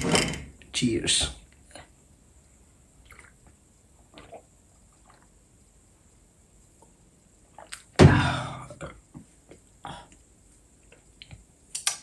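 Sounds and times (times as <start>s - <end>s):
sipping and swallowing: 3.0s - 5.4s, 7.5s - 8.0s.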